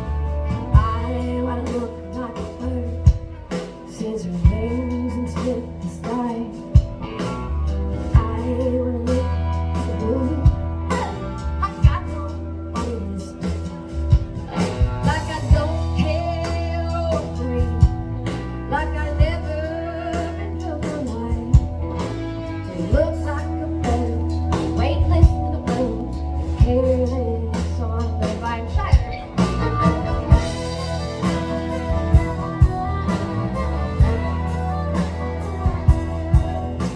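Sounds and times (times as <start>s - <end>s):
woman singing: 0.0s - 7.0s, 8.0s - 36.9s
electric guitar: 0.0s - 36.9s
heavy bass: 0.0s - 36.9s
drum beat: 29.0s - 36.9s.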